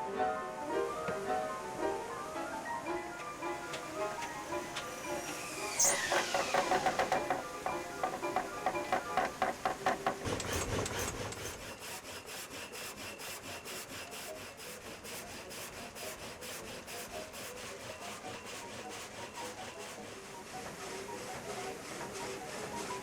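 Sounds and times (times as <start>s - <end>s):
saw blade rasping through wood: 5.2s - 23.0s.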